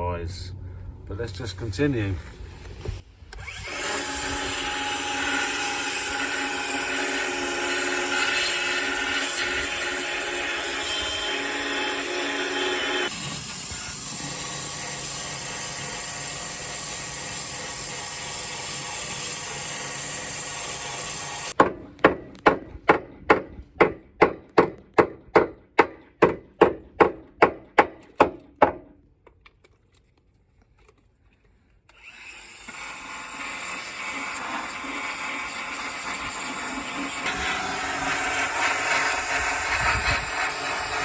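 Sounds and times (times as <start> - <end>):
power tool on metal: 3.3 - 21.6, 31.9 - 41.0
sharp knocks: 21.6 - 28.9.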